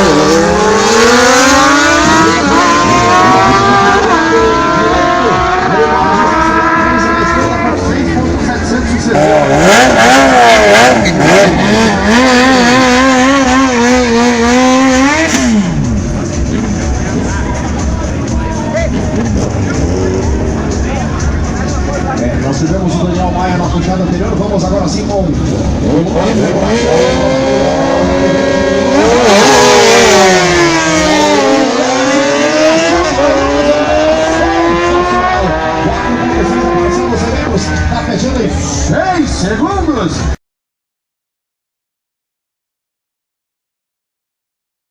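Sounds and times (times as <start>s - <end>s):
motorcycle engine revving hard: 0.0s - 17.2s, 19.0s - 22.5s, 25.0s - 38.4s.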